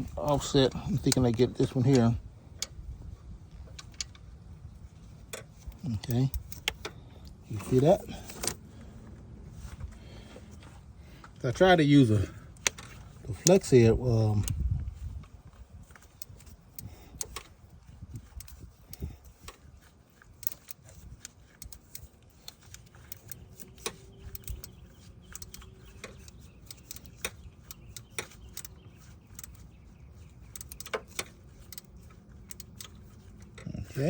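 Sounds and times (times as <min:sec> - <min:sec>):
wrench and ratchet clicking: 0:12.5 - 0:34.0.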